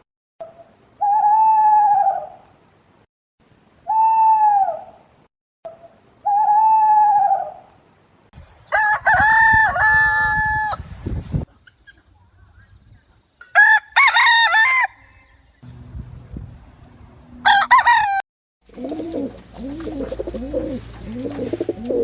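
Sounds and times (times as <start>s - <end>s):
rooster crowing: 8.8s - 10.8s, 13.6s - 15.3s, 17.4s - 18.2s
drawn-out bird calls: 18.6s - 22.0s.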